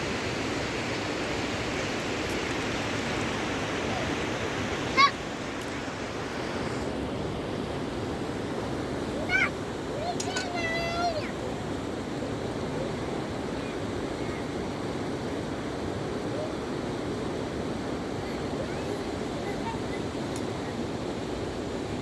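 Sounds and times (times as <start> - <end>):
river rushing: 0.0 - 22.0.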